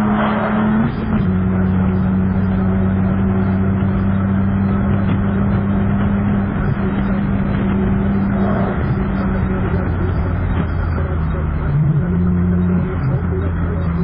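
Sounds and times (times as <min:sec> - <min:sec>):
car engine droning at speed: 0:00.0 - 0:14.0
road and wind noise: 0:00.0 - 0:14.0.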